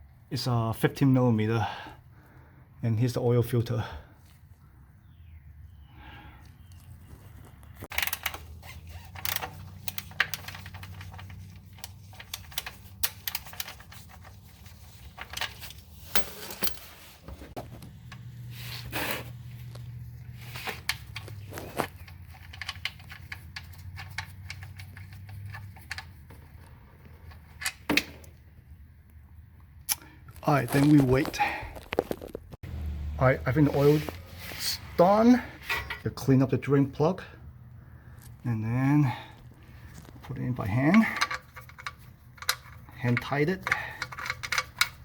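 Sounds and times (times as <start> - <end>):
tools clanking on metal: 15.0 - 17.4.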